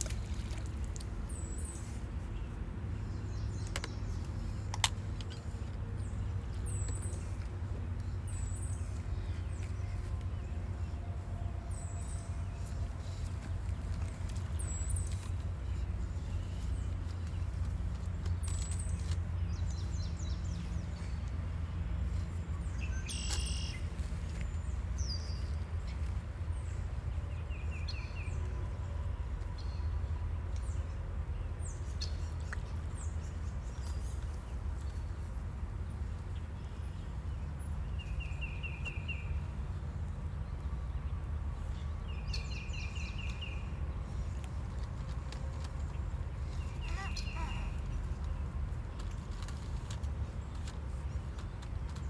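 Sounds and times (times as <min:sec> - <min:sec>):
steady low rumble: 0:00.0 - 0:52.0
birds chirping and calling: 0:46.3 - 0:48.5
rapid bird trills: 0:46.4 - 0:48.2.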